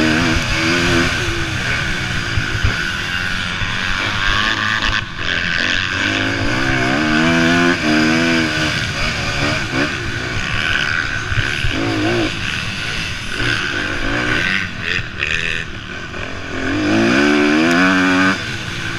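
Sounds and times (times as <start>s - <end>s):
motocross bikes revving: 0.0s - 18.9s.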